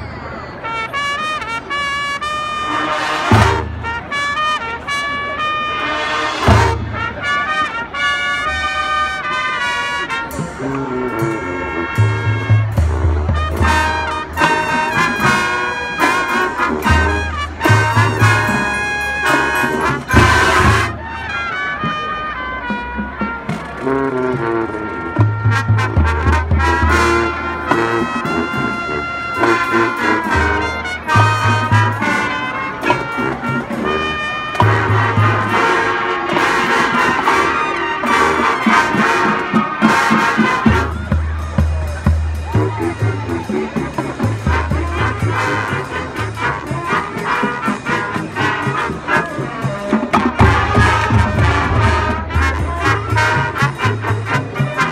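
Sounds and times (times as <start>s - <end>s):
marching band playing jazz: 0.0s - 54.9s.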